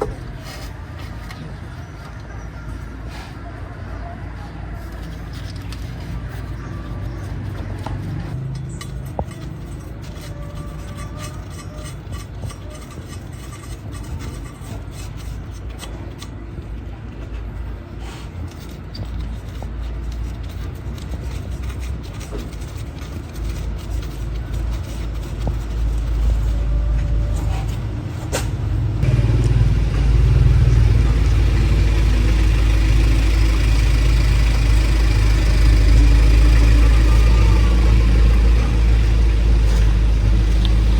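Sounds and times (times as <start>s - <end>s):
car engine running: 28.8s - 40.9s.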